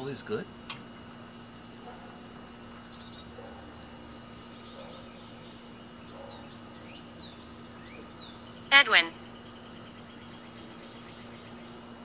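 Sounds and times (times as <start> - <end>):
faint low hum: 0.0 - 12.0
small birds chirping: 1.1 - 12.0.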